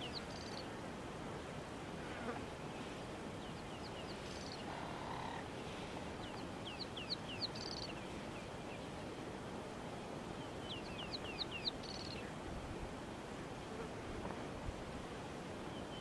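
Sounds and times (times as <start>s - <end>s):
steady background hiss: 0.0s - 16.0s
small bird singing: 6.2s - 8.9s, 10.4s - 12.3s.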